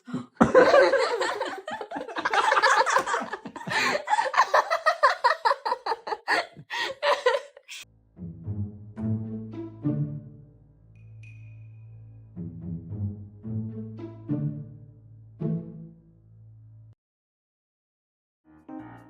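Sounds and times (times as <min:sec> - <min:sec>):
hearty human laughter: 0:00.0 - 0:07.8.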